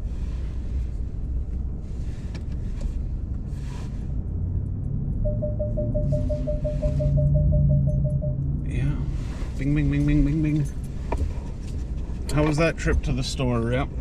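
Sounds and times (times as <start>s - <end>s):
pickup truck engine rumbling: 0.0s - 14.0s
rapid warning chime beeps: 5.2s - 8.4s.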